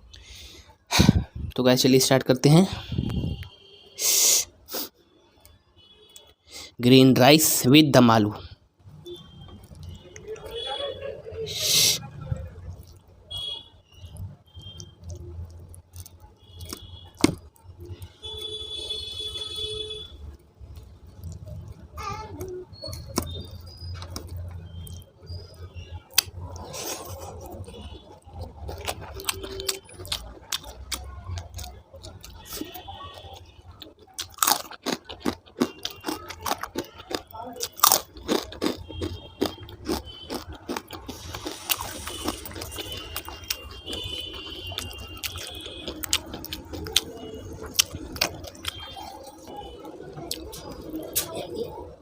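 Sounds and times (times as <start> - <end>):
person chewing and smacking: 9.1 - 10.7, 12.7 - 19.6, 20.6 - 51.4.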